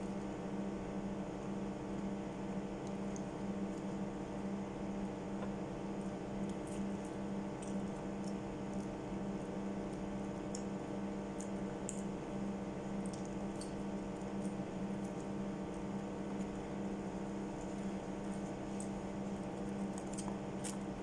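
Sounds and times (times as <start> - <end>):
electrical hum: 0.0 - 21.0
person chewing wetly: 6.0 - 16.7, 17.5 - 21.0.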